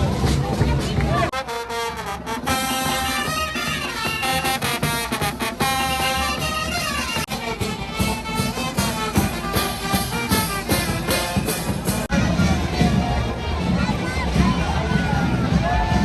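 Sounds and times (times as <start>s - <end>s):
steady drum beat: 0.0s - 1.4s, 2.3s - 16.0s
trumpets and trombones playing: 1.3s - 13.0s.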